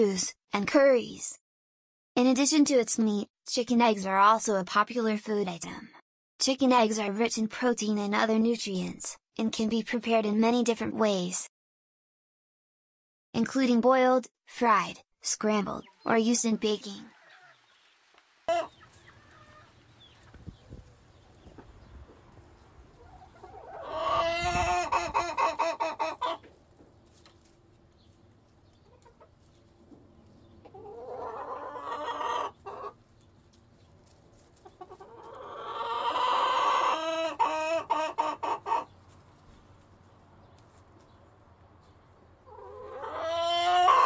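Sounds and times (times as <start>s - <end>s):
chickens calling: 15.8s - 44.0s.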